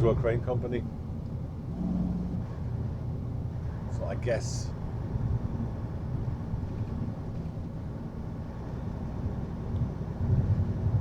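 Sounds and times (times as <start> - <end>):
road noise: 0.0 - 11.0
truck diesel engine drone: 0.0 - 11.0.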